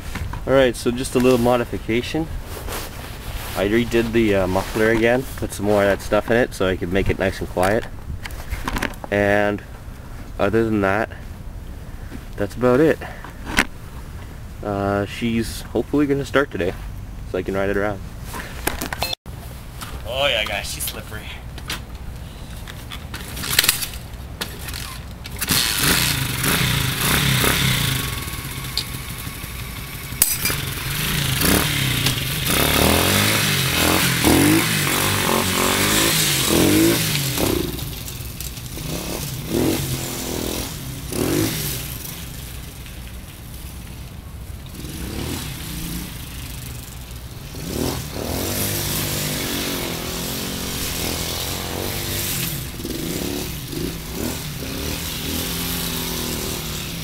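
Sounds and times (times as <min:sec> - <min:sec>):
small motorbike engine revving: 0:24.5 - 0:42.6, 0:44.7 - 0:57.0.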